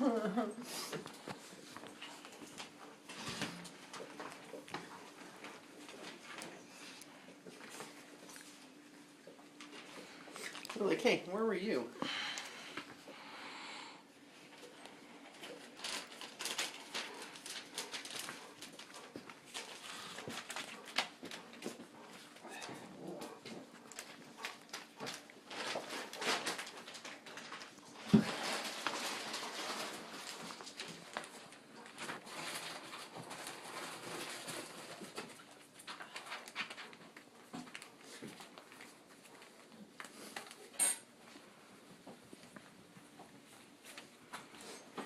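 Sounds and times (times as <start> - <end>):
puppies scratching and clicking: 0.8 - 10.9, 14.5 - 41.5.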